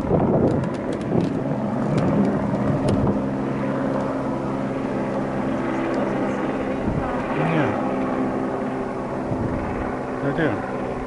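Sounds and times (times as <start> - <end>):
helicopter engine and rotor drone: 0.0 - 11.0.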